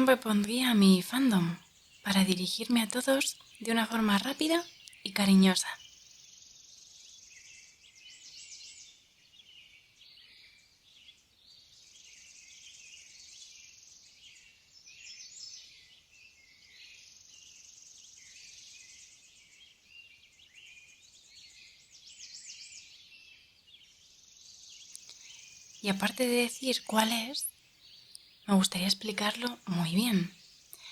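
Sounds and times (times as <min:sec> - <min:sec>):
birds chirping and trilling: 0:00.0 - 0:30.9
steady high-pitched hiss: 0:23.9 - 0:30.9.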